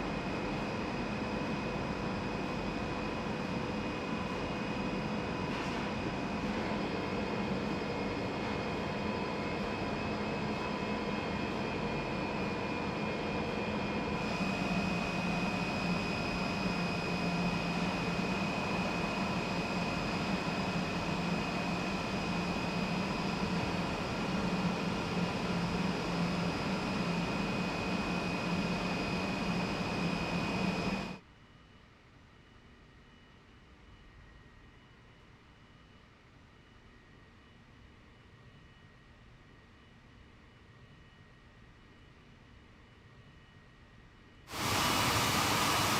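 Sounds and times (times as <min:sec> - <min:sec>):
high steady machine whine: 0:00.0 - 0:31.2, 0:44.5 - 0:45.9
industrial machinery hum: 0:00.0 - 0:31.2, 0:44.5 - 0:45.9.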